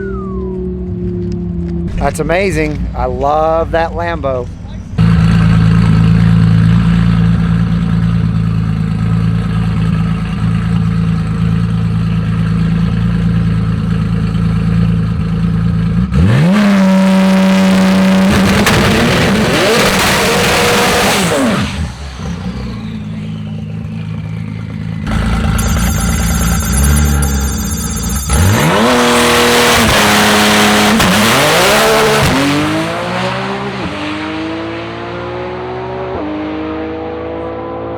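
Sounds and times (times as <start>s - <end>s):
car engine revving and accelerating: 15.8s - 25.7s, 28.3s - 37.9s.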